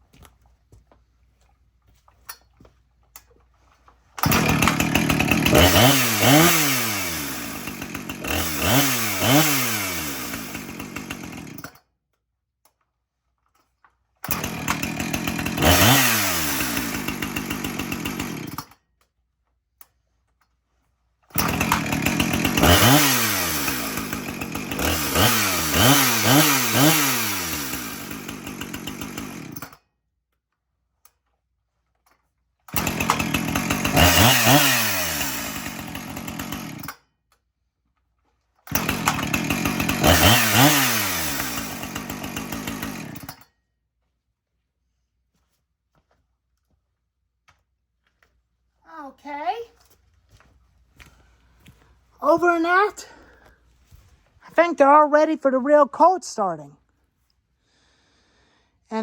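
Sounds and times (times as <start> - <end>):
chainsaw engine revving: 4.2 - 11.8, 14.2 - 18.8, 21.3 - 29.8, 32.7 - 37.0, 38.7 - 43.4.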